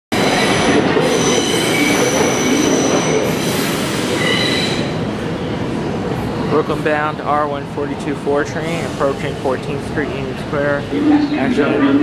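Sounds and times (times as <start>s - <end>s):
train wheels rumbling on rails: 0.1s - 11.2s
high squealing tones: 0.2s - 5.0s.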